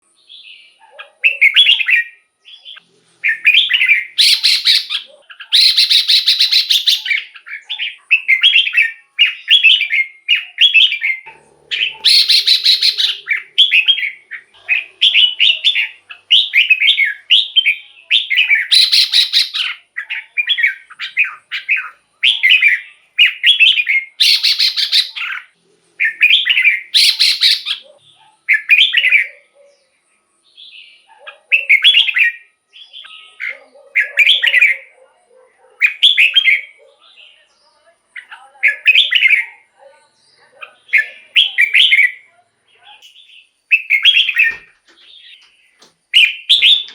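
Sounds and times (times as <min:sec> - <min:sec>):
bird singing whistled phrases: 0:00.3 - 0:29.4, 0:31.5 - 0:34.9, 0:40.8 - 0:42.3, 0:43.0 - 0:45.5, 0:46.1 - 0:46.9
scratchy rasping bird call: 0:11.2 - 0:16.8.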